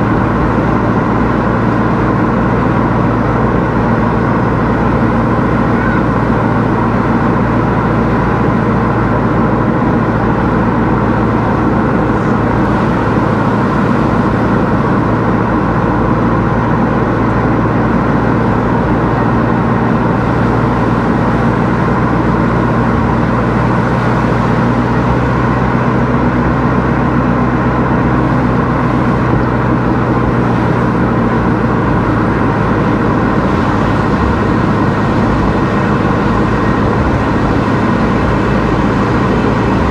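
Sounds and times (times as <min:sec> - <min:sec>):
car engine hum: 0:00.0 - 0:39.9
road and tyre noise: 0:00.0 - 0:39.9.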